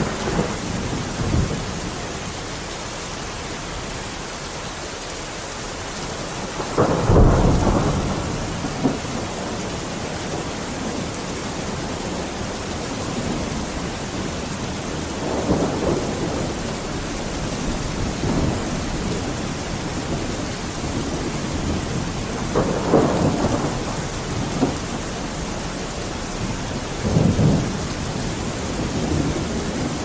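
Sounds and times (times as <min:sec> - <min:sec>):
low thunder rumbles: 0:00.0 - 0:04.0, 0:05.7 - 0:30.0
steady rain falling: 0:00.0 - 0:30.0.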